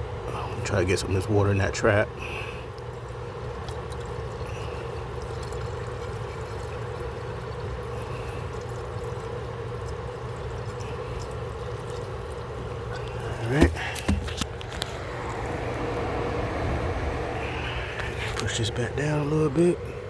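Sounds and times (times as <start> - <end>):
water pouring into drain: 2.2 - 20.0.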